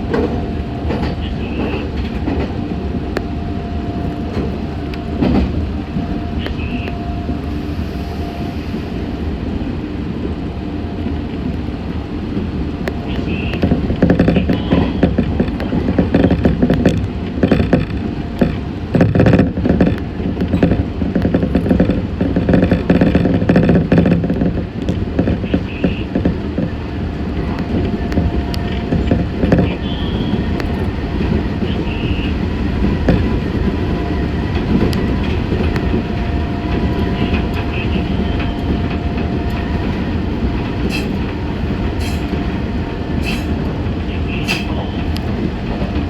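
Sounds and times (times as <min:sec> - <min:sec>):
steady whine: 0:00.0 - 0:09.4, 0:26.7 - 0:46.0
train rumbling on track: 0:00.0 - 0:46.0.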